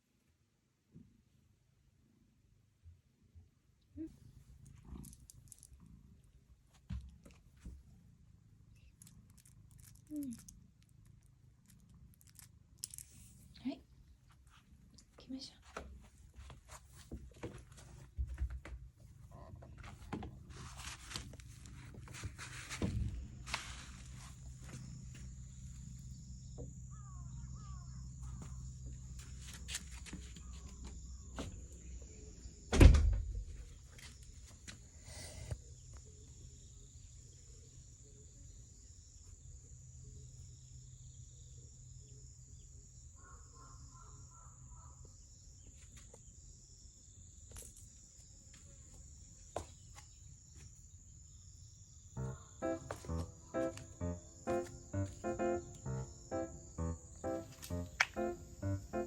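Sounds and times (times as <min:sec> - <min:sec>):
high insect drone: 0:50.8 - 0:59.0.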